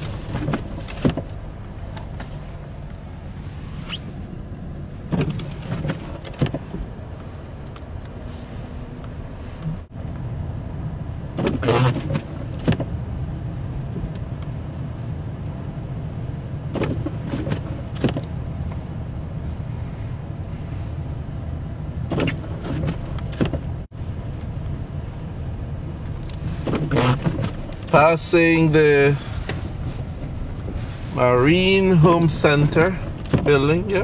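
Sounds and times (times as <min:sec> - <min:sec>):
car engine and road rumble: 0:00.0 - 0:34.0.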